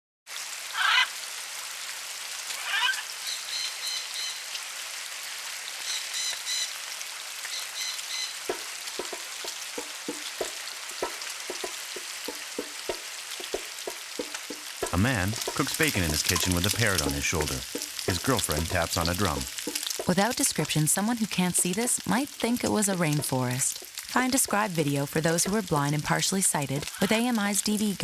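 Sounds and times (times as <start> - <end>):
bacon sizzling in a frying pan: 0.3 - 28.0
parrot calls and chirps: 0.7 - 1.2, 2.5 - 4.6, 5.8 - 9.2
drum tapped with fingers: 8.5 - 20.9.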